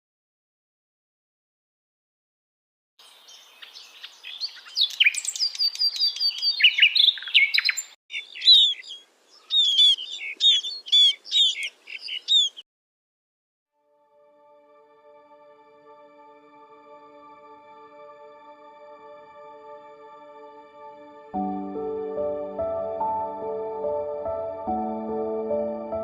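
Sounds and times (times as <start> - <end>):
songbird singing: 3.0 - 12.6.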